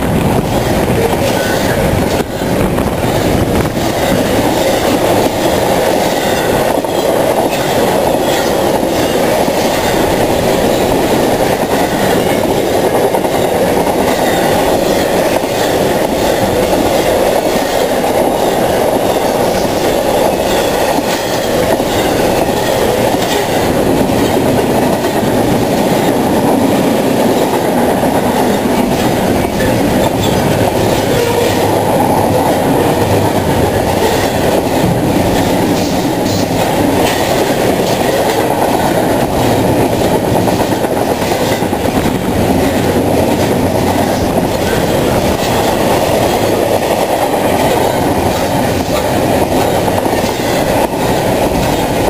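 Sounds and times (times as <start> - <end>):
freight wheels rumbling on rails: 0.0 - 52.0.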